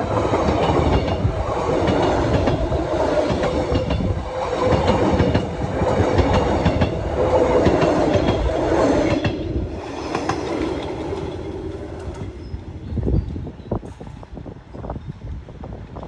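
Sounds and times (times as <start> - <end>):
train wheels clattering: 0.0 - 12.7.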